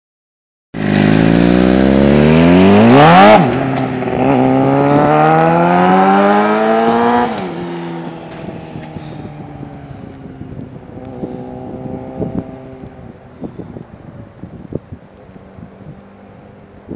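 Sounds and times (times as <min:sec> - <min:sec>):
motorcycle engine accelerating hard: 0:00.8 - 0:14.3.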